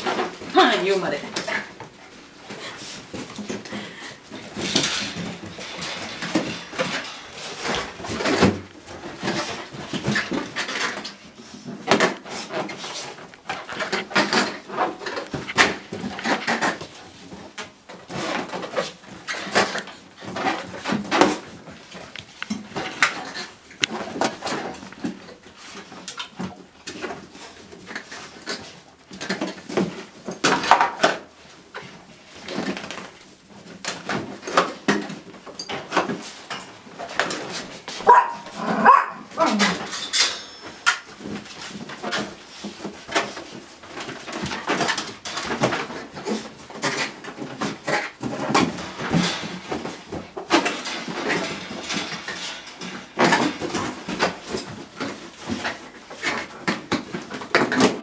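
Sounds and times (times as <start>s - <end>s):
small dog noises: 38.0s - 39.9s.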